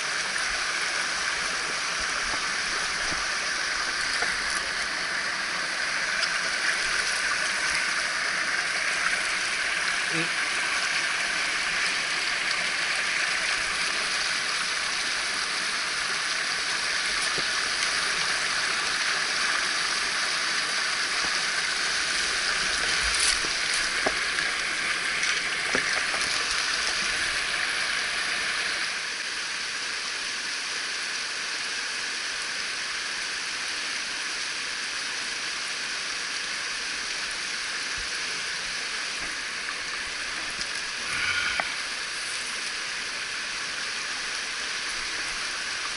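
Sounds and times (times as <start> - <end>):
stream rushing over rocks: 0.0 - 29.6, 35.0 - 45.9.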